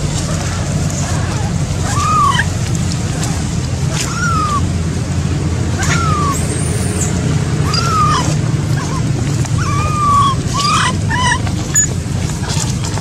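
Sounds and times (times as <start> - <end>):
steady low rumble: 0.0 - 13.0
baby monkey crying: 1.0 - 2.6, 3.9 - 4.7, 5.8 - 6.8, 7.6 - 12.0.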